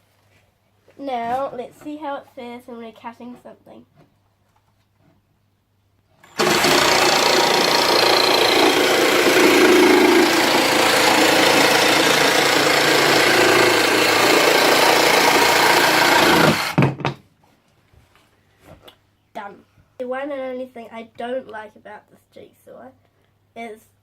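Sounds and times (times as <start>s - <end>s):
jigsaw sawing through wood: 6.2s - 16.8s.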